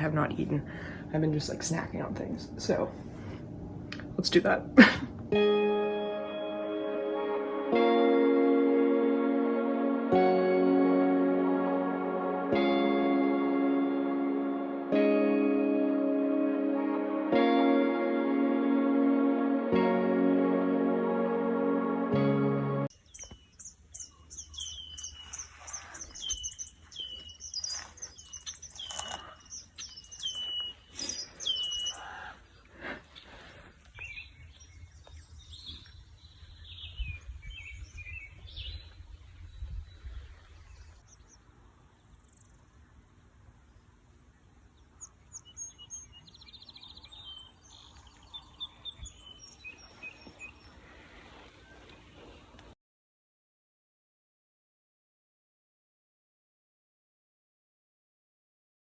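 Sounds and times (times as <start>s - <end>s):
small birds chirping: 22.9s - 52.8s
buzzy bird trill: 23.0s - 32.3s.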